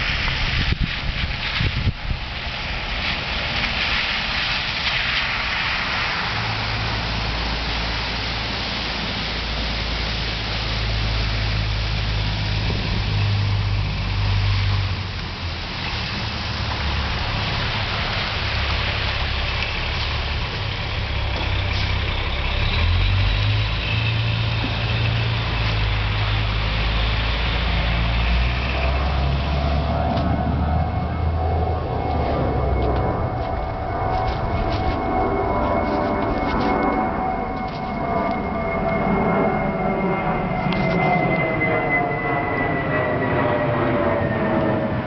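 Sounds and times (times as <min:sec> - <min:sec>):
constant hiss: 0:00.0 - 0:29.8
vehicle engines rumbling: 0:00.0 - 0:45.0.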